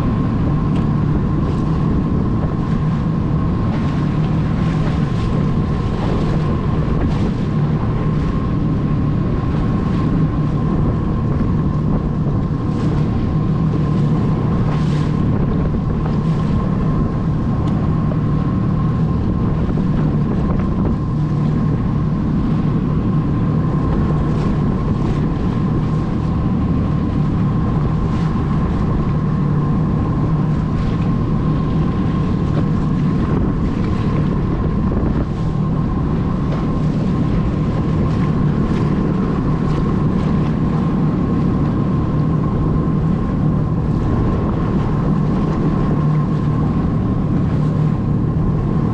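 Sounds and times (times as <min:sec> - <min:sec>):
jet ski engine humming: 0:00.0 - 0:48.9
wind buffeting microphone: 0:00.0 - 0:48.9.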